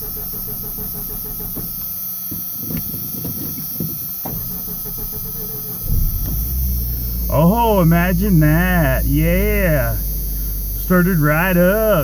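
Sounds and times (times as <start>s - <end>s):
starter cranking engine: 4.3s - 12.0s.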